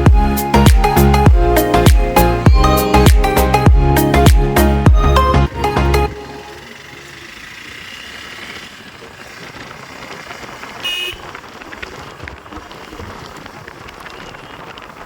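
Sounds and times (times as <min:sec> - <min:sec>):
road traffic noise: 0:00.0 - 0:12.2
vehicle horn toot: 0:10.8 - 0:11.3.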